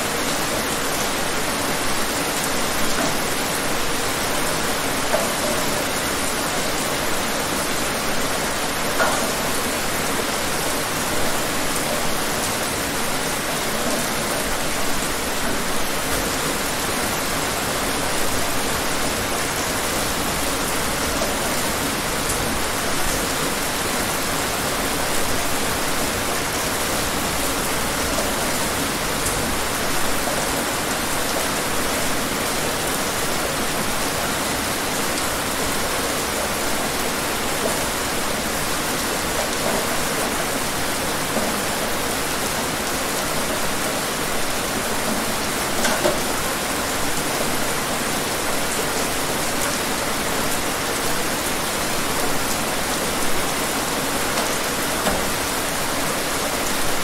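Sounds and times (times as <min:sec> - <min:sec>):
louder raindrops: 0:00.0 - 0:57.0
steady rain falling: 0:00.0 - 0:57.0.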